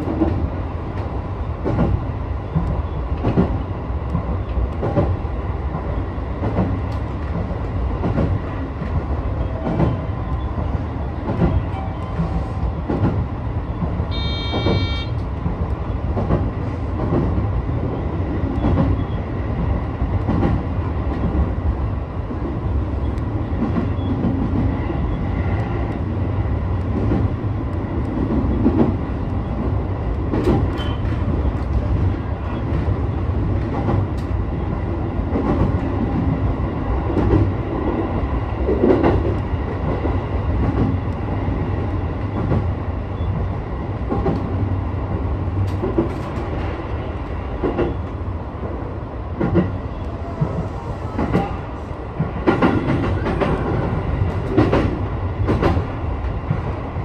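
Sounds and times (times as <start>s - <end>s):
clacks over track: 0.0s - 57.0s
train wheels rumbling on rail: 0.0s - 57.0s
high beep: 14.1s - 15.1s.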